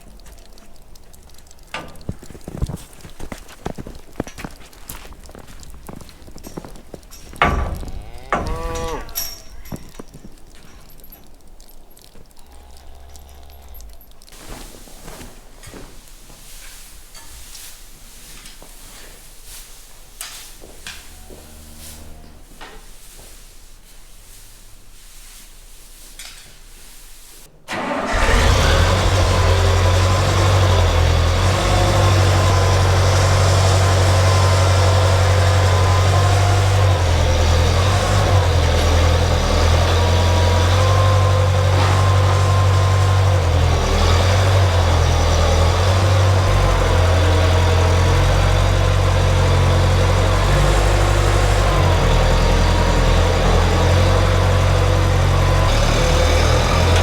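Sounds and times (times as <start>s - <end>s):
vehicle engine humming: 0.0s - 14.6s, 27.7s - 57.0s.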